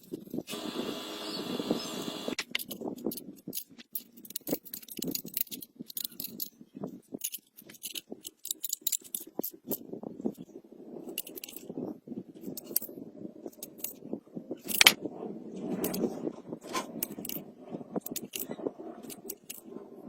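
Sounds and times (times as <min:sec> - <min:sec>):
short machine whir: 0:00.5 - 0:02.4
tools clicking on metal parts: 0:02.4 - 0:10.5, 0:11.1 - 0:11.7, 0:12.4 - 0:12.9, 0:14.6 - 0:15.0, 0:16.9 - 0:19.7.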